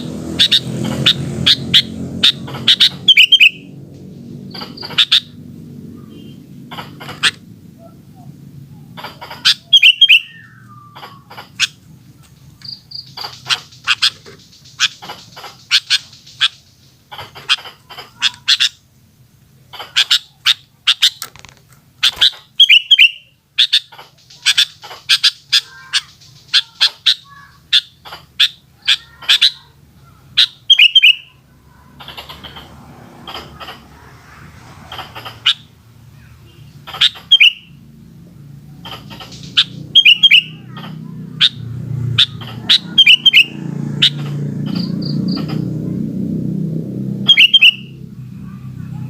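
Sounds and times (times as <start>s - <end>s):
bird chirping rapidly: 0.0s - 7.5s, 8.9s - 18.9s, 19.6s - 21.2s, 22.0s - 48.9s
bird warbled phrase: 4.5s - 11.8s, 22.0s - 46.1s, 46.9s - 49.0s.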